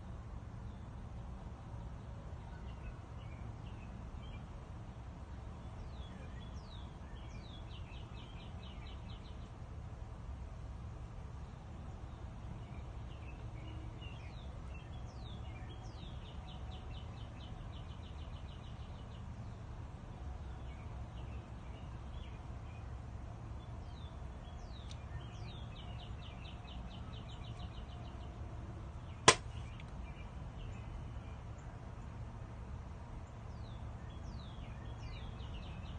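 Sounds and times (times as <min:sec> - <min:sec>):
songbird singing with trill: 0:02.0 - 0:04.5, 0:05.6 - 0:09.6, 0:11.4 - 0:19.7, 0:20.4 - 0:23.0, 0:23.6 - 0:32.2, 0:33.2 - 0:35.9
sharp click: 0:29.3 - 0:29.9.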